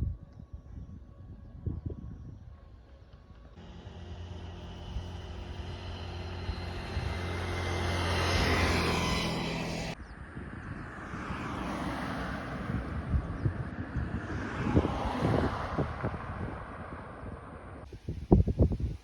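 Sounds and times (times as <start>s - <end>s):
rushing outdoor noise: 1.3s - 19.0s
engine hum: 2.1s - 17.9s.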